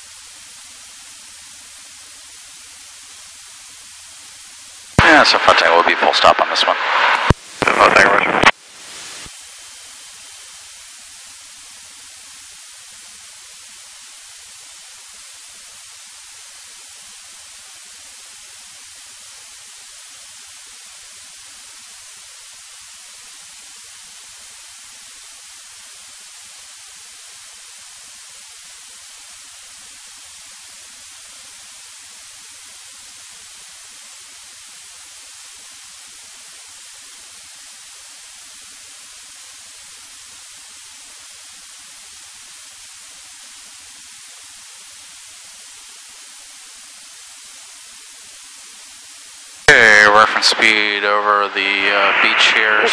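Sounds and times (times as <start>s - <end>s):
intercom hiss: 5.0s - 9.3s, 49.7s - 52.9s.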